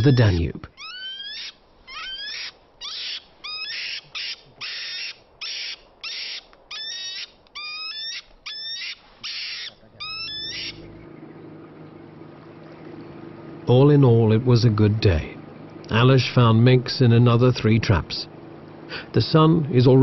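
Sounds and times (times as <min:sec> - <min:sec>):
low steady hum: 0:00.0 - 0:20.0
mink hissing and screeching: 0:00.8 - 0:10.8.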